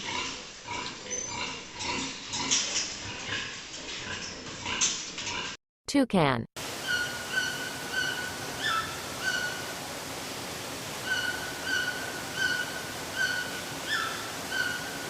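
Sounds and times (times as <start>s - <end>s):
background hiss: 6.6s - 15.0s
toucan yelping calls: 6.8s - 9.8s, 11.0s - 15.0s.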